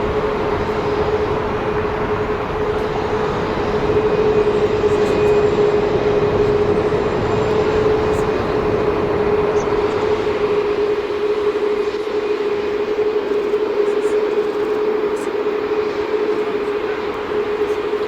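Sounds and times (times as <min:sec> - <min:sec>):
jet engines running: 0:00.0 - 0:18.0
steady droning tone: 0:00.0 - 0:18.0.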